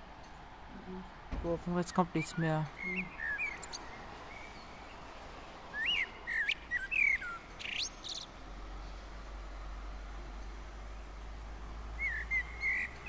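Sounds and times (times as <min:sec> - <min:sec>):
songbird whistling: 0:02.7 - 0:04.7, 0:05.7 - 0:08.3, 0:12.0 - 0:13.0.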